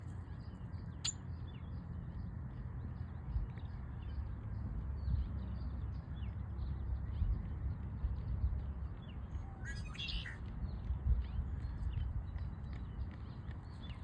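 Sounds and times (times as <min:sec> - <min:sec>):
blackbirds chirping: 0:09.5 - 0:10.4.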